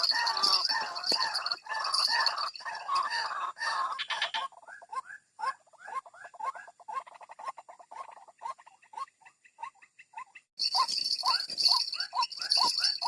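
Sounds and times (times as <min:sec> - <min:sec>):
waterhen calling: 0:00.0 - 0:05.1.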